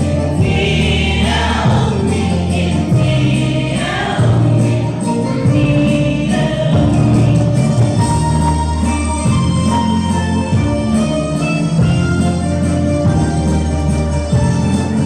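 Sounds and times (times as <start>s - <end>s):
choir singing a hymn: 0.0s - 8.5s
held bass notes: 0.0s - 15.0s.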